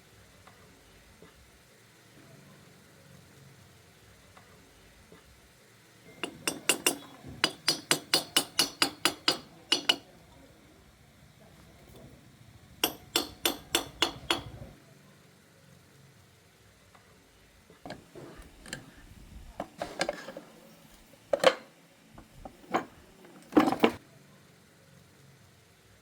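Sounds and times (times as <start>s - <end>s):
metal clinks and knocks: 6.1s - 10.0s, 12.8s - 14.7s, 21.3s - 24.0s
metal tools tapping: 6.1s - 10.1s, 12.8s - 14.7s, 21.3s - 24.0s.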